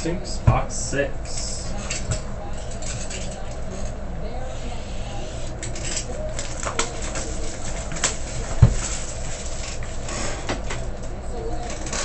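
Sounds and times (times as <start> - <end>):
steady low hum: 0.0 - 12.0
packaging rustling and crinkling: 6.3 - 10.1.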